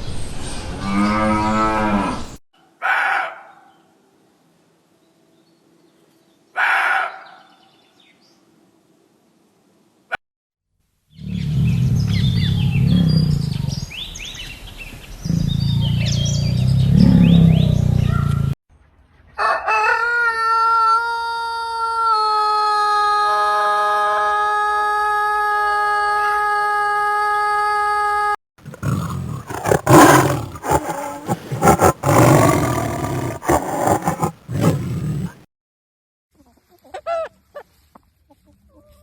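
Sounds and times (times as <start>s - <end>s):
rooster crowing: 19.4s - 24.9s
rough irregular calls: 28.6s - 35.4s.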